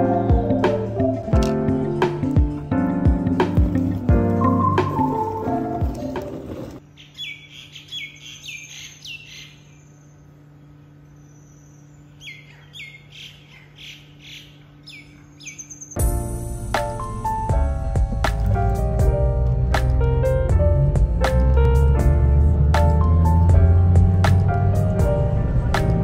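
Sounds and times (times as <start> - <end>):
steady low hum: 9.6 - 26.0.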